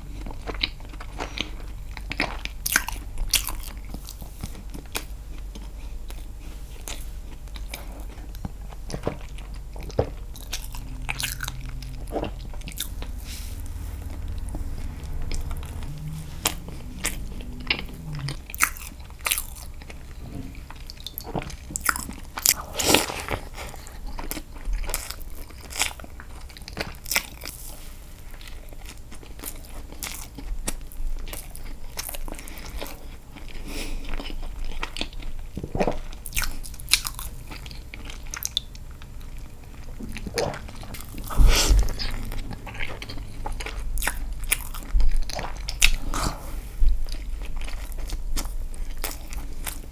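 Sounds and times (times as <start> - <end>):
chewing and biting cake: 0.0 - 49.9.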